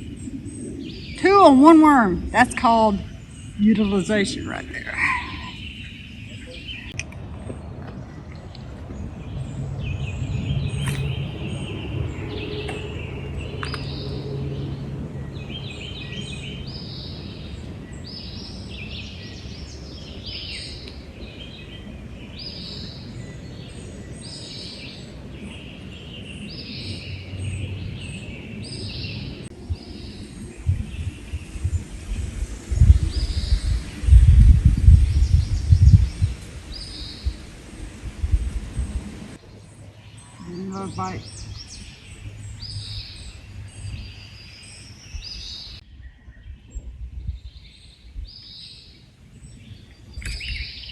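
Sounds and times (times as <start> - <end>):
birds chirping: 0.0 - 50.9
low outdoor background noise: 0.0 - 50.9.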